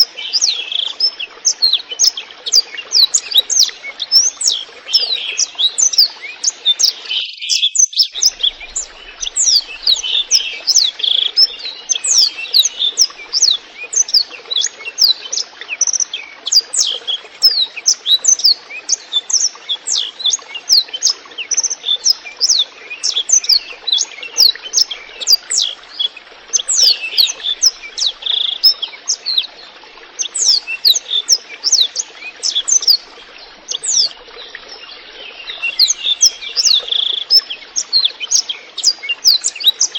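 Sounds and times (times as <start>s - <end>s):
running water trickling: 0.0s - 39.9s
canary singing: 7.2s - 14.2s, 35.4s - 37.4s.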